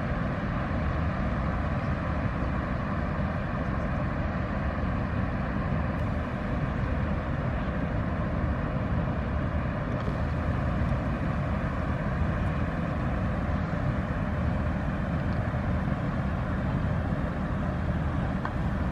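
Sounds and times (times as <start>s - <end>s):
faint hum: 0.0s - 18.9s
ship diesel engine rumble: 0.0s - 18.9s.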